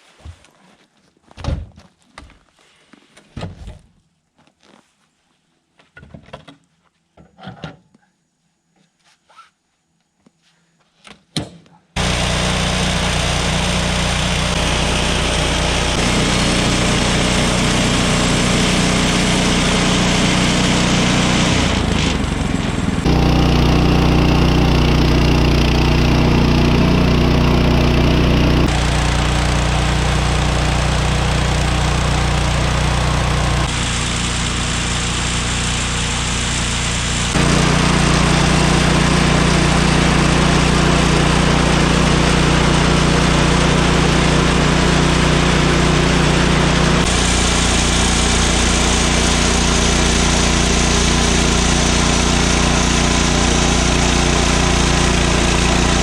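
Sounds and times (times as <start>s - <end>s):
bandsaw mill engine cutting wood: 12.0s - 56.0s.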